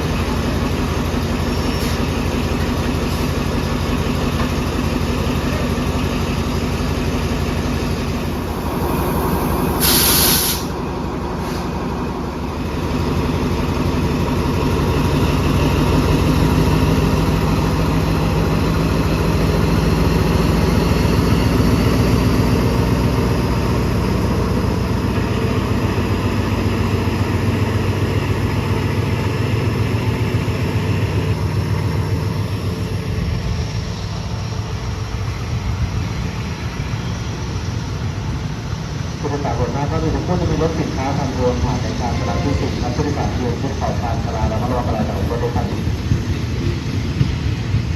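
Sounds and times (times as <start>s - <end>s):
diesel train engine running: 0.0s - 47.9s
air brake hiss: 1.6s - 2.2s, 8.5s - 11.8s.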